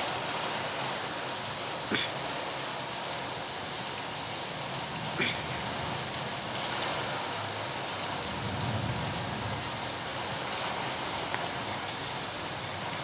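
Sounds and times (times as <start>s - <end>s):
heavy rain hissing: 0.1s - 13.0s.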